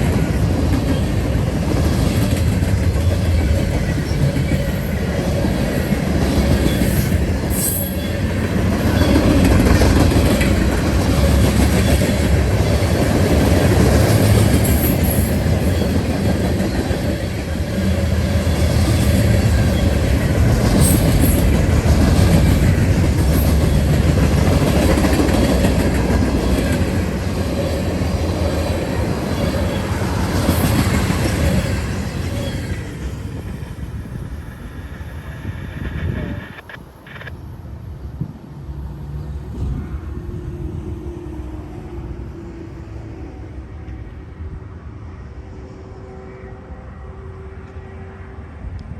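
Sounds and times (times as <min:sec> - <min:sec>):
train wheels rumbling on rail: 0:00.0 - 0:37.3.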